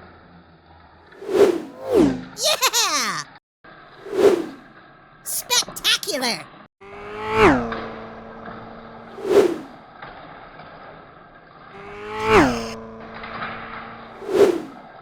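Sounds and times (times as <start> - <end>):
racing car engine passing by: 11.6 - 14.8.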